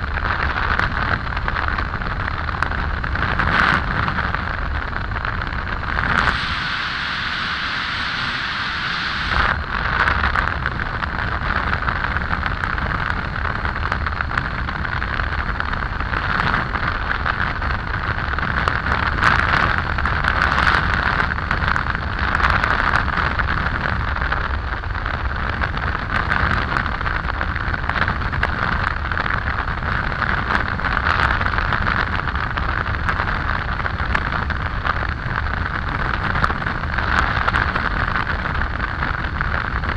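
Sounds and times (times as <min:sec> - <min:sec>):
wind buffeting microphone: 0:00.0 - 0:39.9
road noise: 0:04.6 - 0:12.3.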